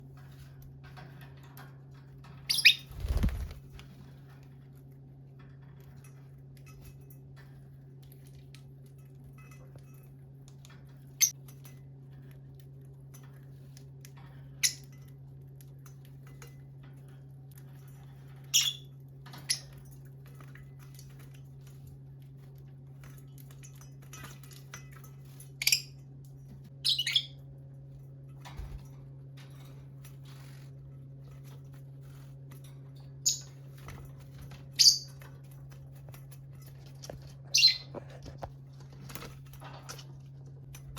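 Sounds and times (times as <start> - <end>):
lovebirds chirping: 2.5 - 2.9.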